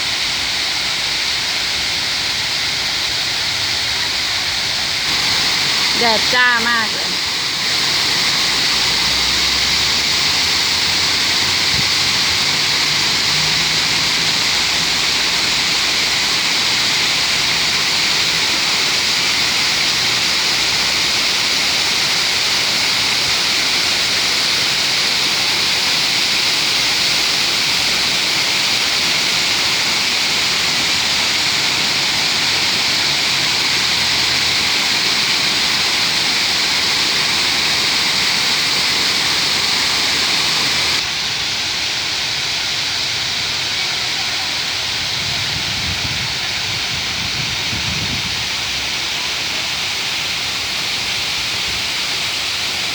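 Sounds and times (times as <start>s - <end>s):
waterfall pouring: 0.0s - 52.9s.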